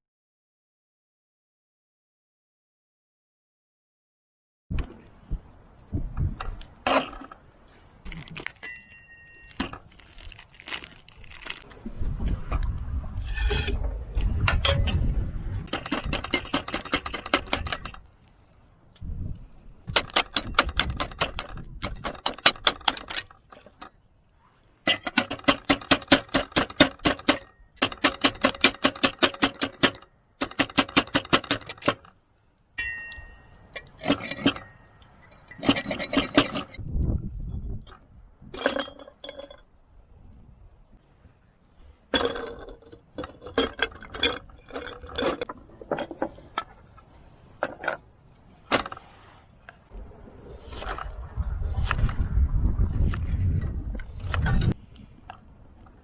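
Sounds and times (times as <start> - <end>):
tableware clinking: 32.8 - 36.6.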